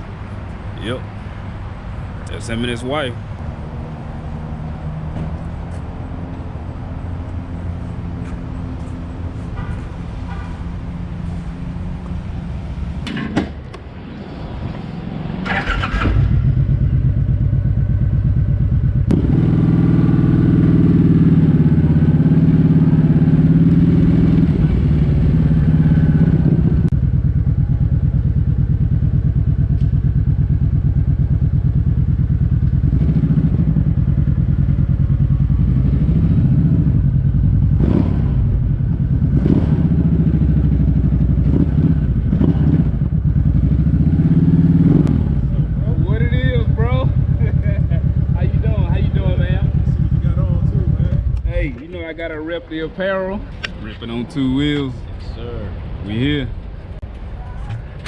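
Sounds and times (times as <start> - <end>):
motorcycle engines idling: 15.4 - 55.5
close engine pulsing idle: 45.3 - 51.6.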